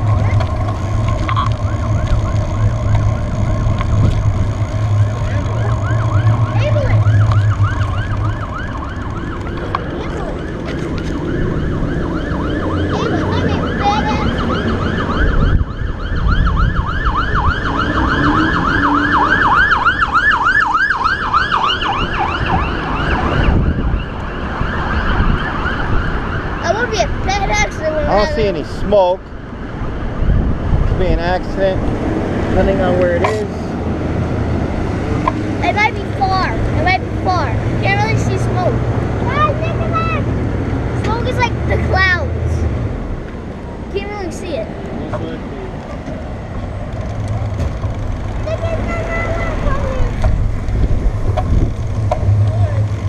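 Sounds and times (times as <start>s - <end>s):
fire engine siren yelping: 0.0s - 27.2s.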